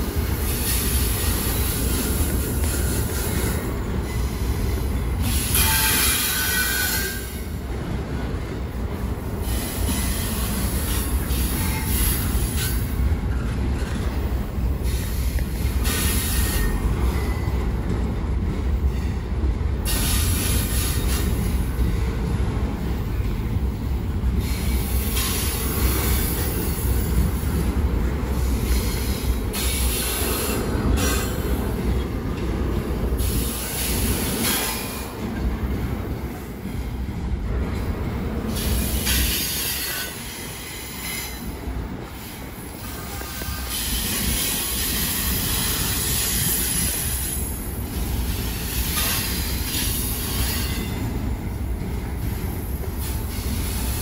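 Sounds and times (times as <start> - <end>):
squealing train wheels: 0.0 - 7.6, 9.3 - 18.0, 18.8 - 22.2, 24.4 - 27.7, 28.3 - 36.9, 37.8 - 54.0
train cars rumbling: 0.0 - 54.0.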